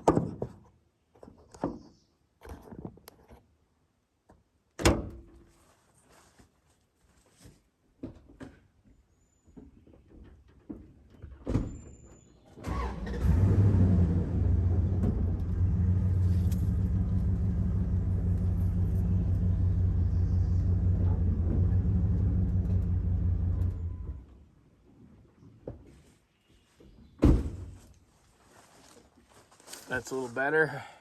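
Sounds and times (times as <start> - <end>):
truck engine running: 12.7 - 24.2.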